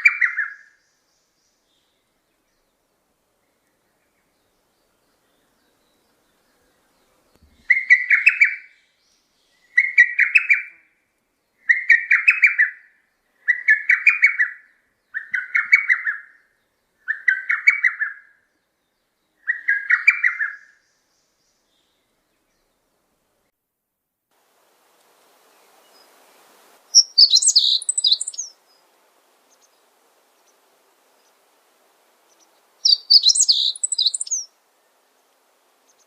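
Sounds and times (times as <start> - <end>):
bird calling rapid notes: 27.0 - 28.5, 32.8 - 34.4.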